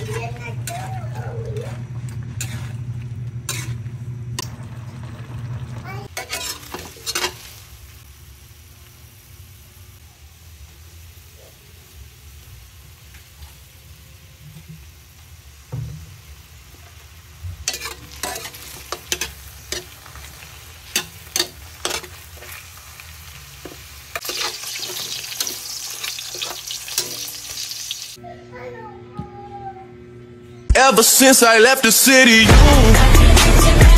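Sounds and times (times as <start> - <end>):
sausages frying in oil: 4.4 - 28.2.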